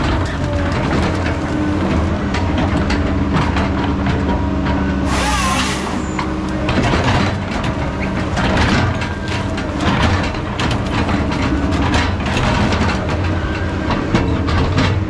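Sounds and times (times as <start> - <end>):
diesel engine running: 0.0 - 15.0
metal clanks and knocks: 0.0 - 15.0.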